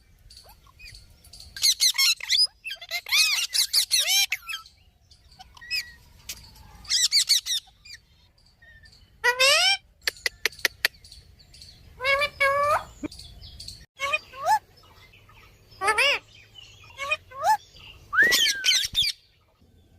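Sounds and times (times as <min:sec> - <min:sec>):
parrot calling: 0:01.6 - 0:04.7, 0:06.8 - 0:08.2, 0:08.8 - 0:11.0, 0:12.0 - 0:13.1, 0:15.8 - 0:16.2, 0:16.8 - 0:19.2.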